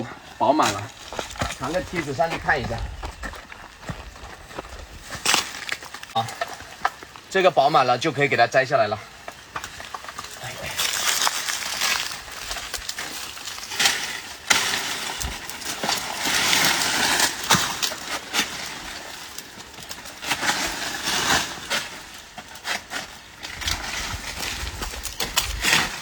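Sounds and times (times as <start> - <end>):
dry leaves rustling and crackling: 0.5 - 7.9, 9.2 - 26.0
sharp snaps and knocks: 5.1 - 7.2, 9.2 - 20.7.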